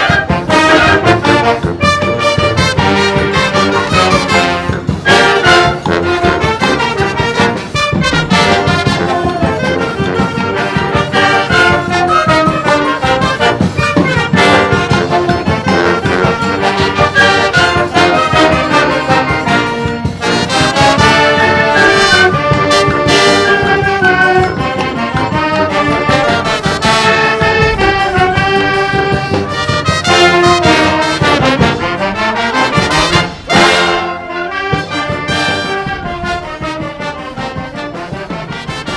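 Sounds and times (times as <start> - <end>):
steady drum beat: 0.0 - 38.9
trombones and trumpets playing: 0.0 - 38.9.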